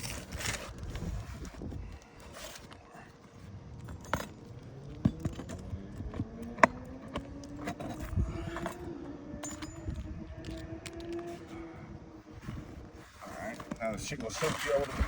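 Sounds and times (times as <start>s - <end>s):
faint low hum: 0.0s - 15.0s
hand tool clinking on nails: 3.8s - 11.3s.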